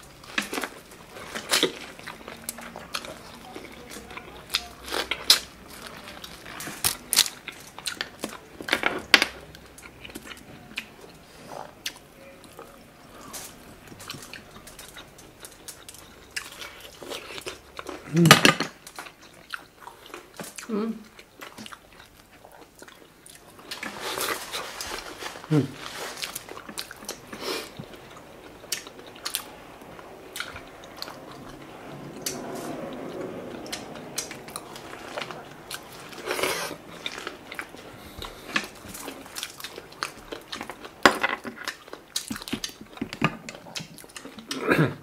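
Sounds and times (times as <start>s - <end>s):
chewing and biting shellfish: 13.1s - 44.7s.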